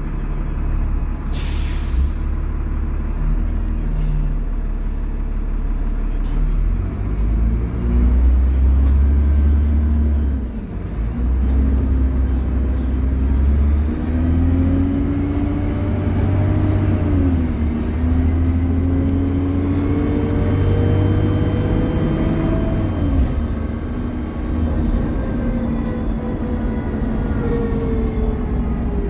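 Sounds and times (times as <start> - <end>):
bus engine accelerating: 0.0 - 29.0
pitched engine whine: 11.9 - 29.0.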